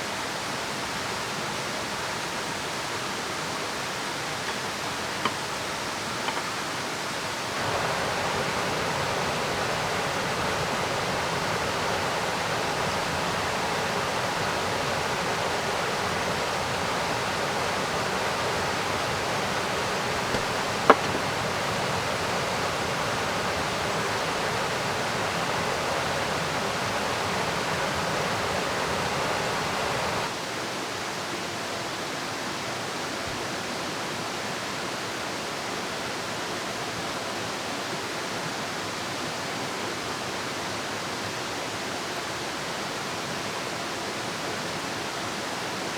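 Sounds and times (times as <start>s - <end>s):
rain: 0.0s - 45.9s
river rushing: 0.3s - 31.0s.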